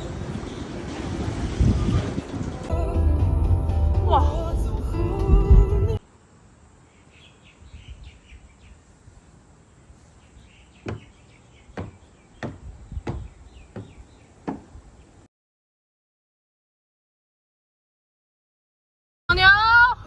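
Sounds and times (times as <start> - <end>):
outdoor background noise: 0.0 - 15.3
faint bird chirping: 6.7 - 15.3
sharp knocks: 10.8 - 11.2, 11.8 - 14.7.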